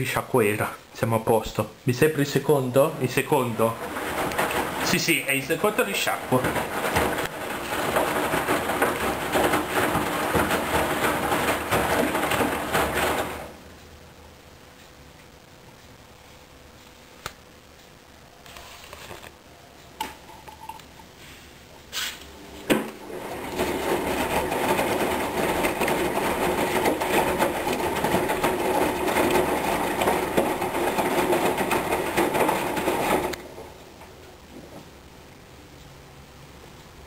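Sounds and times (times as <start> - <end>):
washing machine water rushing: 2.0 - 13.7, 22.3 - 34.2
washing machine clicks: 3.0 - 13.6, 22.5 - 34.2.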